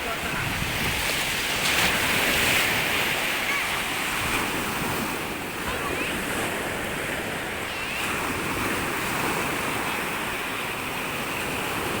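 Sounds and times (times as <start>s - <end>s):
wind buffeting microphone: 0.0s - 6.8s
waves washing onto beach: 0.0s - 12.0s.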